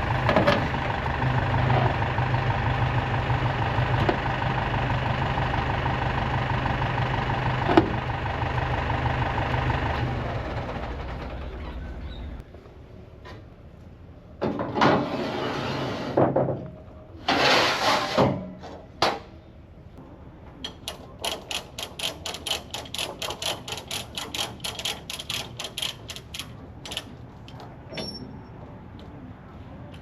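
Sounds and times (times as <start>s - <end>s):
ratchet clicks: 20.6s - 27.1s.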